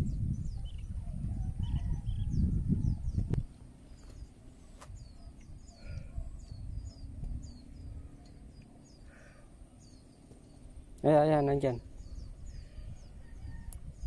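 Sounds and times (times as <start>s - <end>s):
small birds chirping: 0.0s - 14.0s
low rumble: 5.0s - 9.1s.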